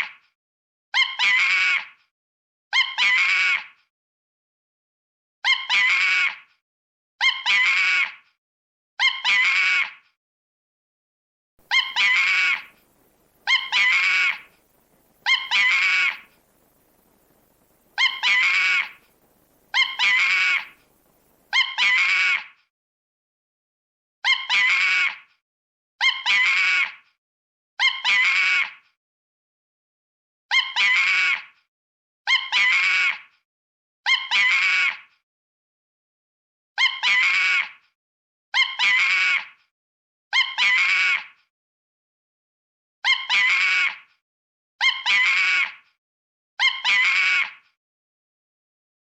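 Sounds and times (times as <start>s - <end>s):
animal yelps and screech: 0.0s - 0.2s, 1.0s - 2.1s, 2.7s - 3.9s, 5.4s - 6.6s, 7.2s - 8.3s, 9.0s - 10.2s, 11.6s - 22.7s, 24.2s - 25.3s, 26.0s - 27.1s, 27.8s - 28.9s, 30.5s - 31.6s, 32.3s - 33.4s, 34.1s - 35.2s, 36.8s - 37.8s, 38.6s - 39.7s, 40.3s - 41.5s, 43.0s - 44.2s, 44.8s - 46.0s, 46.6s - 47.8s.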